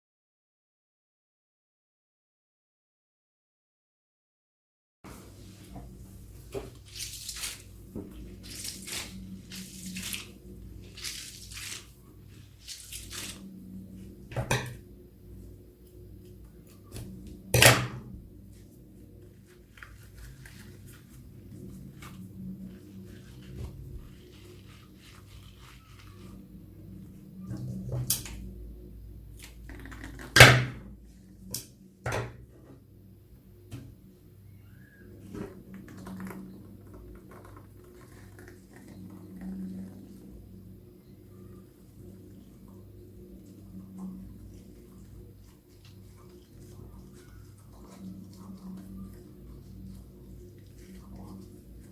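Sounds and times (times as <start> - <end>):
hands handling plastic packaging: 6.4 - 13.5
squishy toy squelching: 19.4 - 26.6.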